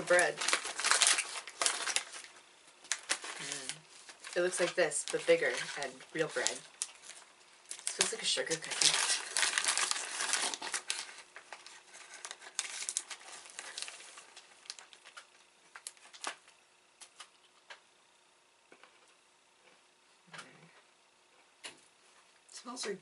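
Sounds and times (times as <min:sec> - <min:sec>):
plastic wrapper crinkling: 0:00.0 - 0:17.3.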